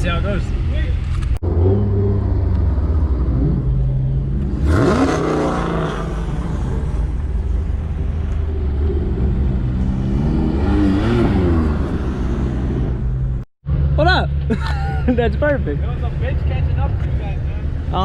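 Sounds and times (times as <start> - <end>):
car engine revving: 1.0 - 14.1.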